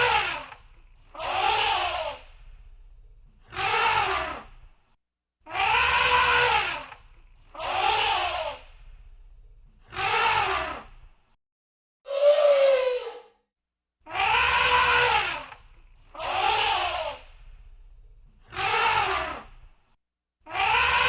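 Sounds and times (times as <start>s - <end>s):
elephant trumpeting: 5.5s - 6.9s, 14.1s - 15.5s.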